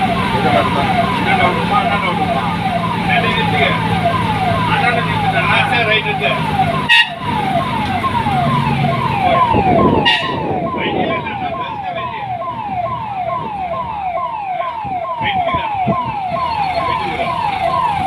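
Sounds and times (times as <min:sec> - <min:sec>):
electronic siren falling tone: 0:00.0 - 0:18.0.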